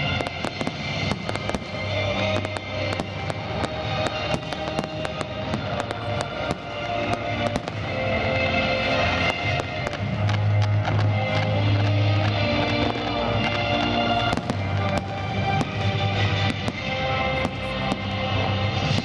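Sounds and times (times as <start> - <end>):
fireworks bangs and crackles: 0.0 - 19.0
music with long held notes: 0.0 - 19.0.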